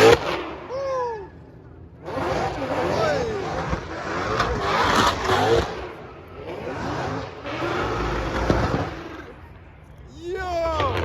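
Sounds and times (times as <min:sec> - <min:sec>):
car engine revving: 0:00.0 - 0:00.7, 0:01.8 - 0:09.6
tyre and road noise: 0:00.0 - 0:11.0.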